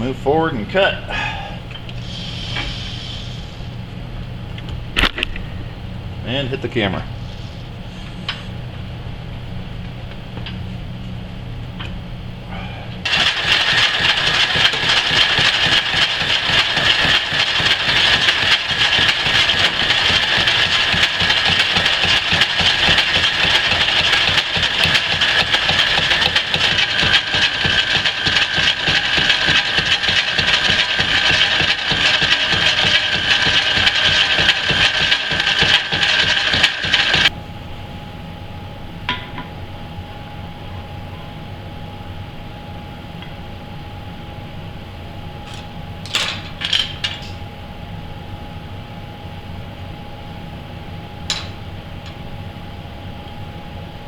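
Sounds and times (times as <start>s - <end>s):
metal lathe machining: 13.1s - 37.3s.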